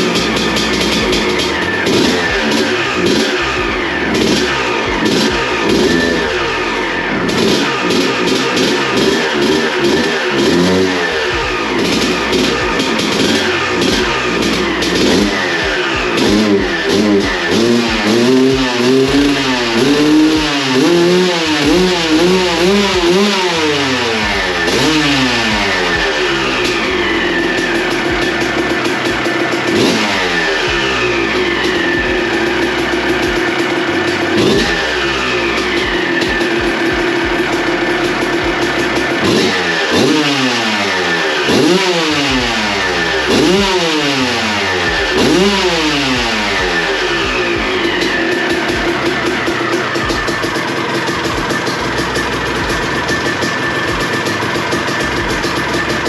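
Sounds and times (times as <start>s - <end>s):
two-stroke engine revving: 0.0s - 56.0s.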